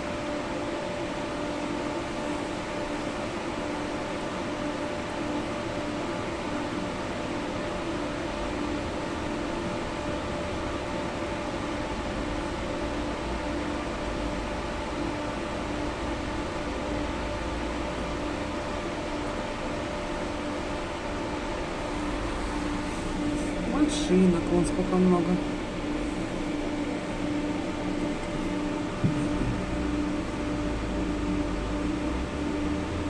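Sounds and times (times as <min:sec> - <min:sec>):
electric hum: 0:07.6 - 0:33.0
tram rolling rumble: 0:08.2 - 0:33.0.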